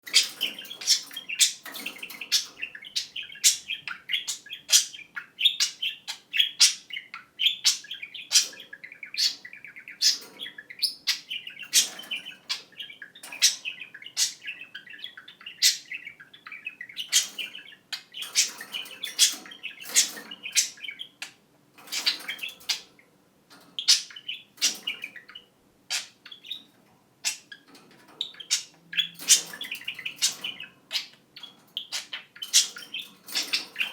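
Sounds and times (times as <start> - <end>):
budgerigars chattering: 0.0 - 23.0, 23.7 - 33.9.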